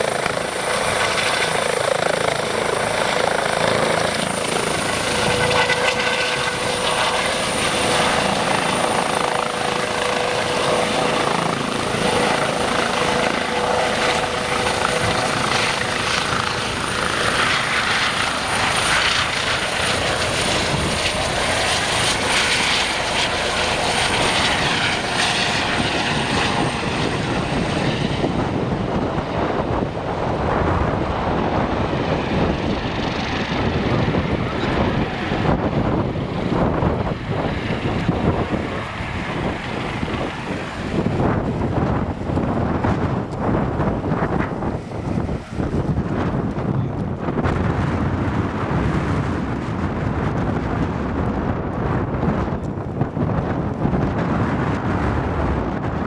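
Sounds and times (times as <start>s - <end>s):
helicopter rotor noise: 0.0s - 56.0s
high turbine whine: 0.0s - 56.0s.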